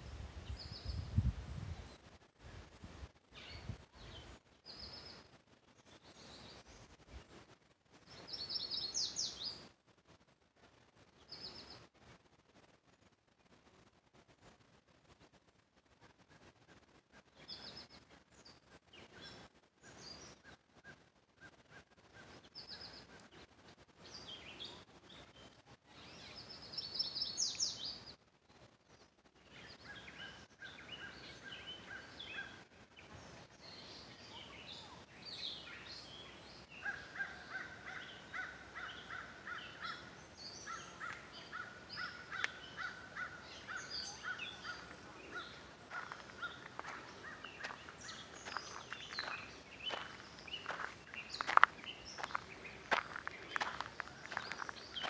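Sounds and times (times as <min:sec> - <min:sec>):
rapid repeated bird calls: 0:16.0 - 0:28.2, 0:29.0 - 0:55.0
birds chirping and singing: 0:24.1 - 0:28.1, 0:29.5 - 0:55.0.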